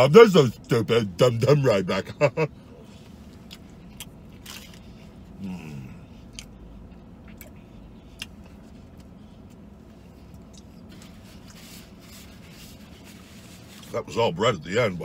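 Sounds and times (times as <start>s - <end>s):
man chewing: 2.9s - 13.9s.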